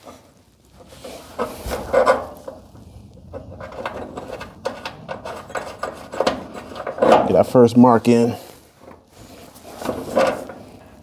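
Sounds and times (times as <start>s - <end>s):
metal hinge knocks and scrapes: 3.4s - 7.3s.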